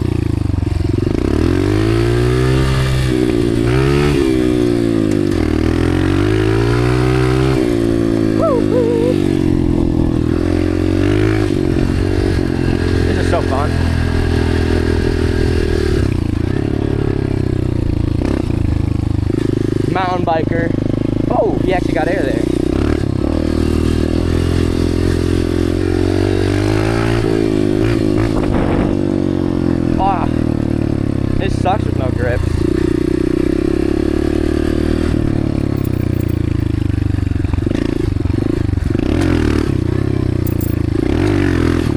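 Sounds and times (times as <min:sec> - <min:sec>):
dirt bike engine revving: 0:00.8 - 0:41.9.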